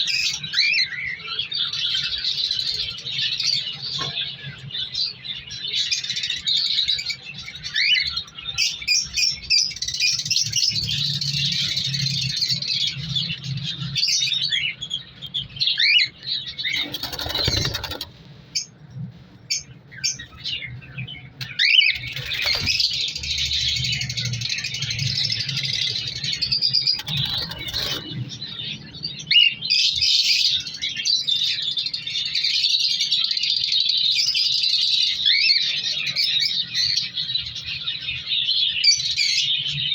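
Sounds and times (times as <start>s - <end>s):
cockatiels chirping: 0.2s - 18.7s, 19.5s - 39.6s
wing flaps: 16.7s - 18.2s, 22.0s - 23.1s, 27.0s - 28.2s.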